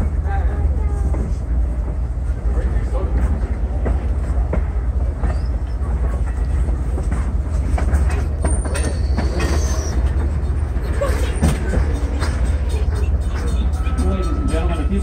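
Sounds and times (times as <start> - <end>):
train wheels clicking over rail joints: 1.0 - 15.0
faint high wheel squeals: 5.2 - 5.9, 8.4 - 12.1, 12.7 - 15.0
steady low rumble: 10.0 - 15.0.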